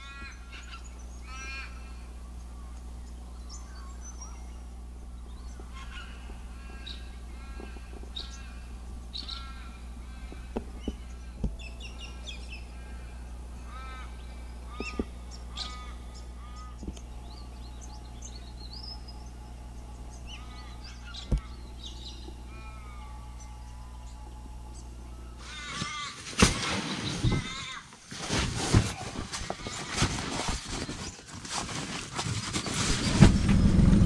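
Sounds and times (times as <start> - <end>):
birds calling: 0.0 - 34.0
steady low hum: 0.0 - 34.0.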